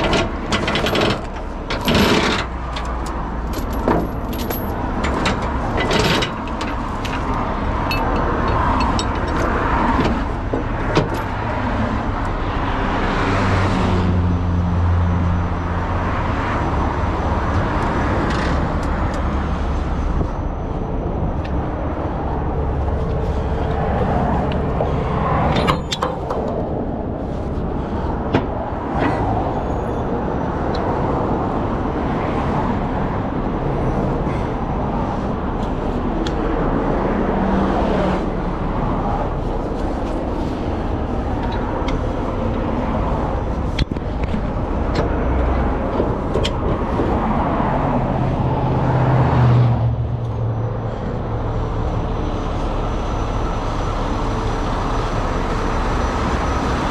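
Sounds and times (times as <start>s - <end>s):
vehicle engine hum: 0.0s - 56.9s
sharp clicks and knocks: 24.4s - 26.8s.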